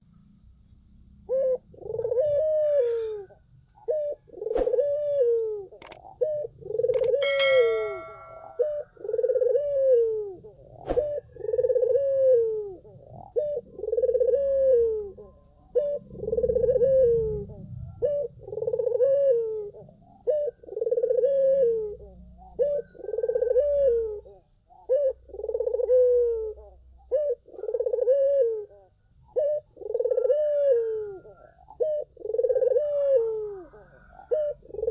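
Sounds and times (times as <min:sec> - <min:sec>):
dove cooing: 0:01.2 - 0:34.9
sharp clicks: 0:07.0 - 0:08.5
high chirp: 0:07.0 - 0:08.6.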